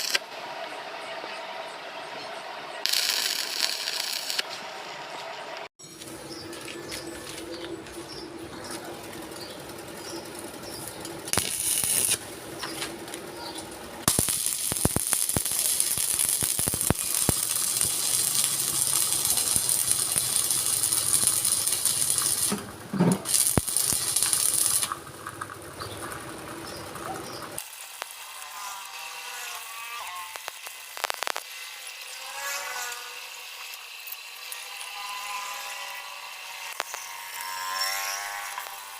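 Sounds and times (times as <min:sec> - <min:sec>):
metalworking machinery running: 0:02.8 - 0:29.8
scattered clicks: 0:30.3 - 0:31.5.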